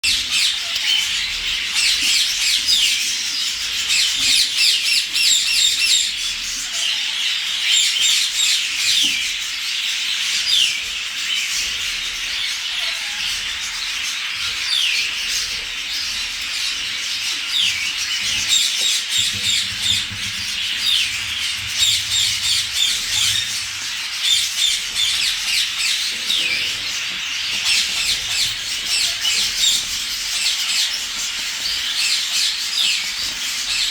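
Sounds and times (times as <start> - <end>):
parrots squawking: 0.0 - 33.9.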